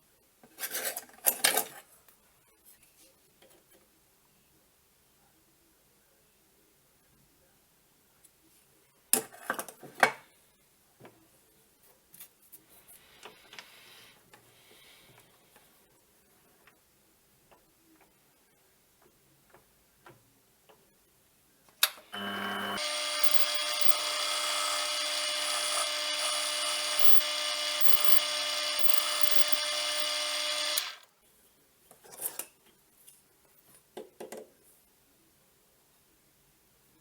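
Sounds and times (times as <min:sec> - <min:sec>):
lathe whine: 0:22.2 - 0:31.1.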